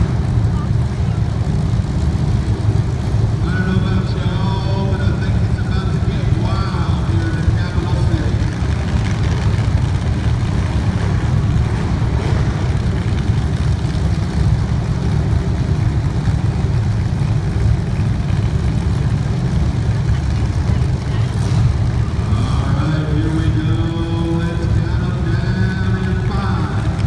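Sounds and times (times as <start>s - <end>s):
race car engines rumbling: 0.0s - 27.0s.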